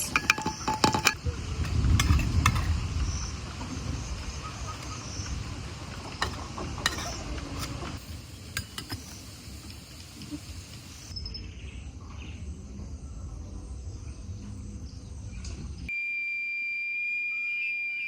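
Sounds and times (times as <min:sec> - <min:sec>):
pot and utensils clinking: 0:00.0 - 0:02.9, 0:06.0 - 0:09.4.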